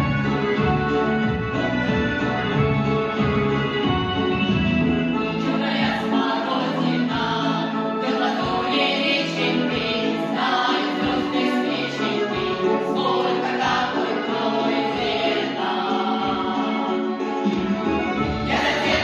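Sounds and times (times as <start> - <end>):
choir singing long notes: 5.4 - 19.0.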